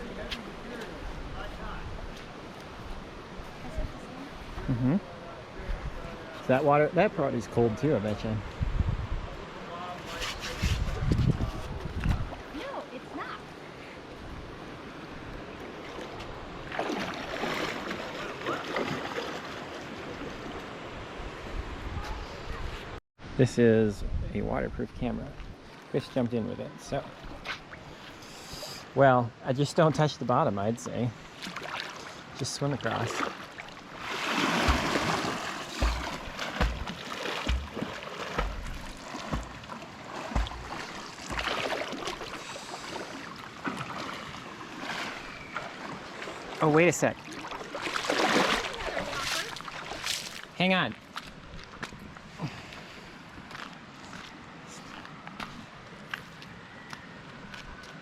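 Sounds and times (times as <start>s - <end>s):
water splashing and sloshing: 9.9s - 21.9s, 29.8s - 56.4s
creek rushing: 12.4s - 21.8s, 30.2s - 50.6s
short low thumps: 34.7s - 39.7s, 40.3s - 41.6s.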